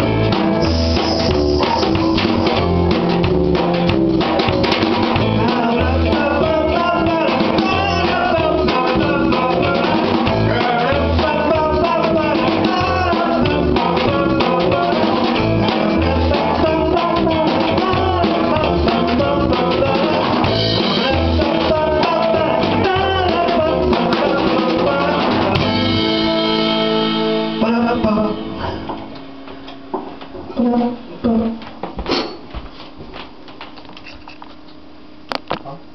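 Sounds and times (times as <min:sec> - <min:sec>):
live band playing: 0:00.0 - 0:29.2
person singing: 0:05.2 - 0:26.6, 0:27.2 - 0:28.8.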